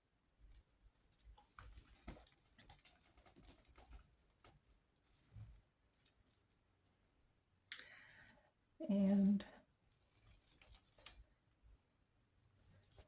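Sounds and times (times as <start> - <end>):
rustling of dry twigs: 1.1 - 6.5, 9.9 - 11.3.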